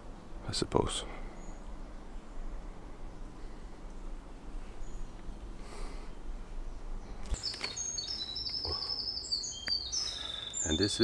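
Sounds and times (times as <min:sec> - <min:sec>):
low rumble and hiss: 0:00.0 - 0:11.0
high bird chirp: 0:07.3 - 0:11.0.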